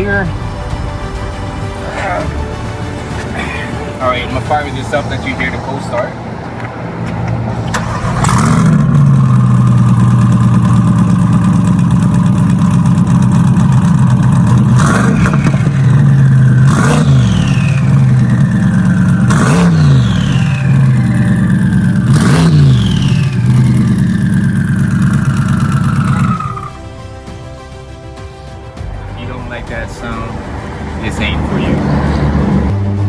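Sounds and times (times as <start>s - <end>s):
car engine starting and idling: 0.0s - 33.0s
engine throttle blips: 2.5s - 27.1s, 29.4s - 33.0s
turbo whistle: 25.2s - 26.8s.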